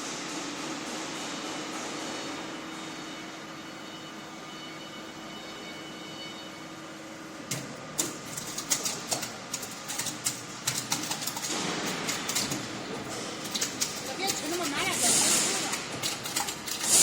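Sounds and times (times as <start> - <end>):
meat tumbler machine humming: 0.0 - 17.0
sharp clicks and clattering knocks: 7.5 - 17.0.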